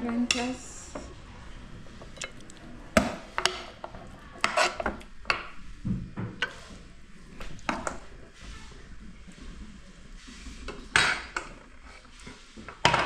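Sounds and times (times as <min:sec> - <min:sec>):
utensils clattering on pots: 0:00.0 - 0:05.6, 0:10.7 - 0:13.0.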